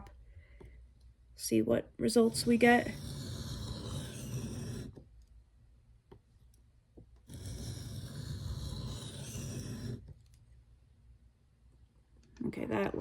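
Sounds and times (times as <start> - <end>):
knife scraping on sharpening stone: 7.3 - 10.0.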